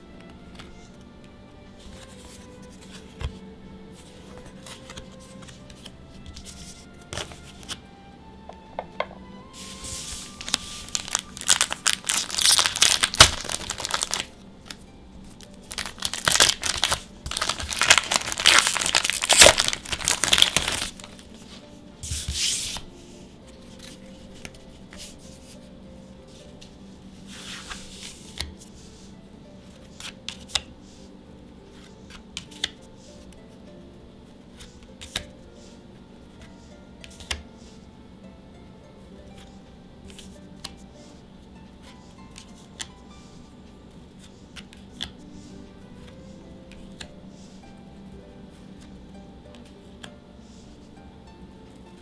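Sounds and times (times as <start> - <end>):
cards tapping and clicking: 0.2 - 3.4, 4.0 - 7.9, 8.5 - 9.3, 10.3 - 22.9, 27.6 - 28.9, 29.6 - 30.8, 31.7 - 33.4, 34.5 - 35.4, 37.0 - 37.5, 44.2 - 45.2
foil wrapper tearing and crinkling: 10.4 - 14.3, 15.6 - 21.2.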